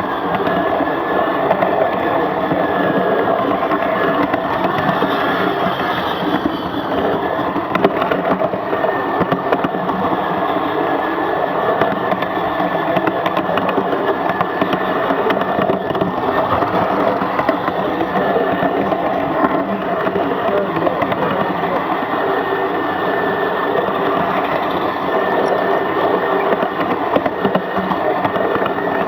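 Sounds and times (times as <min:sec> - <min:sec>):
steam locomotive hiss: 0:00.8 - 0:09.2.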